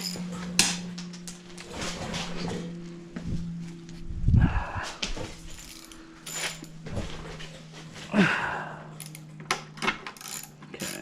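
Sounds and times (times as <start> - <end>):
metal tools clinking and tapping: 0.0 - 1.4, 5.4 - 7.6, 9.0 - 11.0
steady low hum: 0.0 - 11.0.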